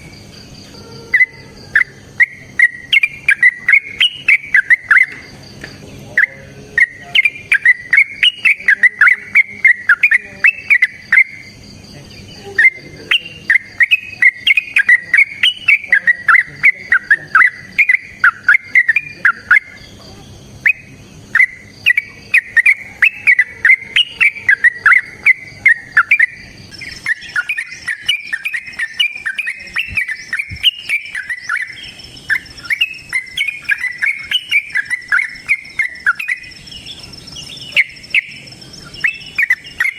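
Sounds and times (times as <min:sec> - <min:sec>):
bulbul singing chattering notes: 0:00.0 - 0:39.9
faint high-pitched hum: 0:00.0 - 0:39.9.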